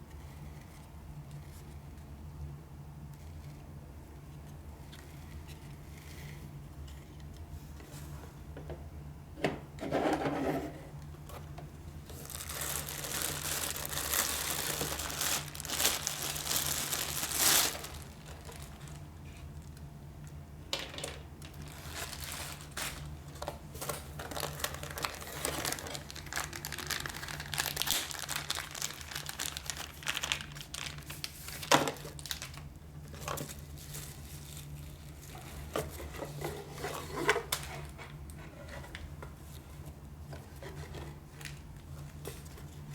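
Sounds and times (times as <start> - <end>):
low electrical hum: 0.0 - 42.9
packaging crinkling: 12.0 - 19.9, 21.4 - 36.2.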